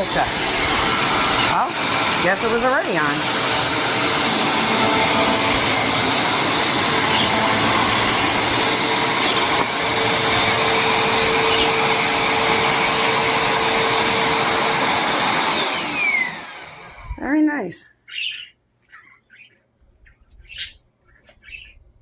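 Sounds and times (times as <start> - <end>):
vacuum cleaner running: 0.0 - 17.4.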